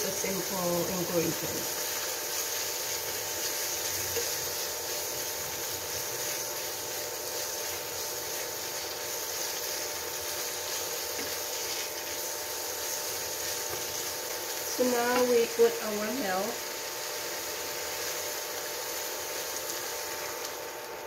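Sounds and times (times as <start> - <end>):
food sizzling in a pan: 0.0 - 21.0
spatula stirring in pan: 1.6 - 15.6.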